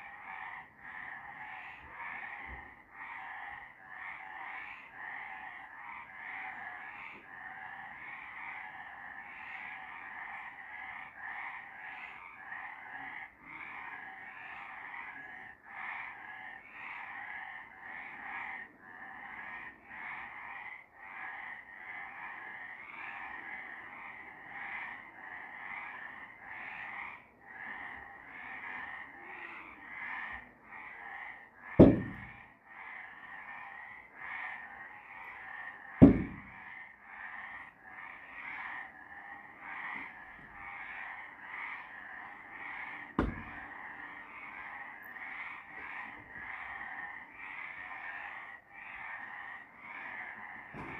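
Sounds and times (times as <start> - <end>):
frogs calling: 0.0 - 50.9
sharp thump: 31.8 - 32.4, 36.0 - 36.5, 43.2 - 43.6.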